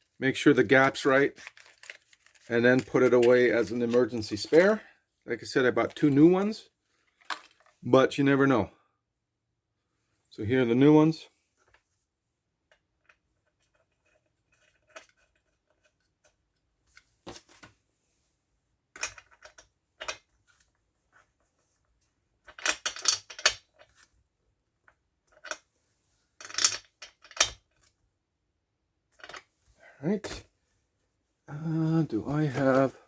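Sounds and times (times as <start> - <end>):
metal parts clicking and clinking: 7.2 - 7.8, 22.5 - 24.0, 26.4 - 27.6.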